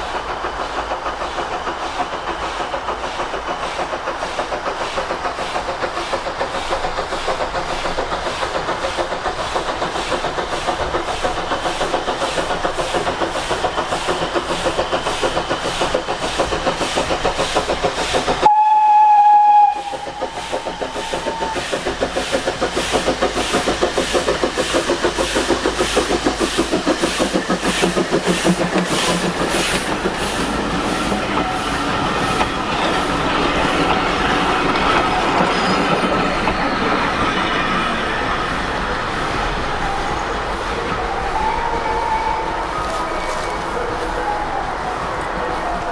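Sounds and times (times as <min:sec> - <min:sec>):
locomotive rhythmic beats: 0:00.1 - 0:45.9
train whistle: 0:18.4 - 0:21.6, 0:39.8 - 0:45.9.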